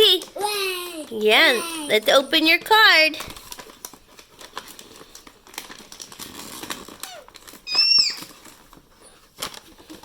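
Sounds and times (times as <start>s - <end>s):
paper envelope rustling: 1.2s - 10.0s.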